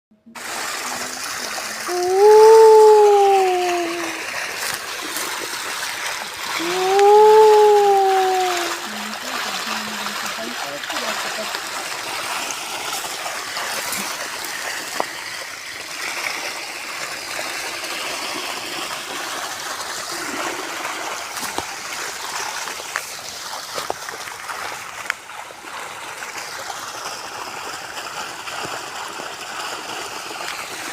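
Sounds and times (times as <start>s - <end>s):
sharp knocks or splashes: 0.3s - 16.2s, 20.1s - 25.4s
river water flowing: 0.3s - 30.9s.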